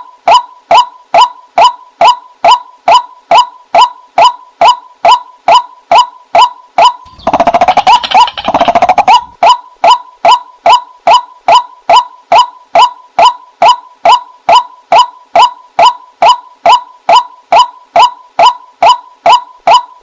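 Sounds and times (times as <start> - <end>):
bird sharp kwak calls: 6.8 - 10.0
bird fast chattering: 7.0 - 9.6.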